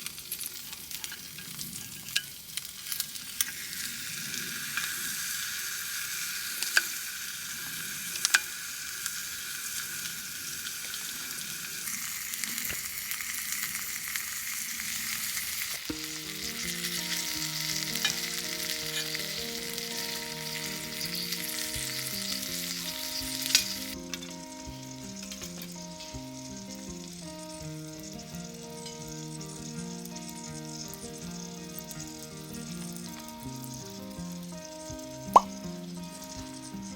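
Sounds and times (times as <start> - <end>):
food sizzling in a pan: 0.0 - 36.9
background music: 15.9 - 36.9.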